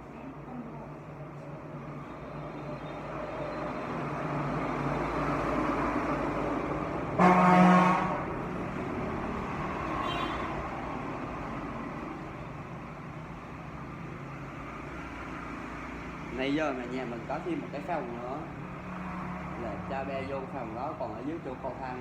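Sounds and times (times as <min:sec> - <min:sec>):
street traffic: 0:00.0 - 0:22.0
vehicle horn honking: 0:07.2 - 0:08.2, 0:10.0 - 0:10.5.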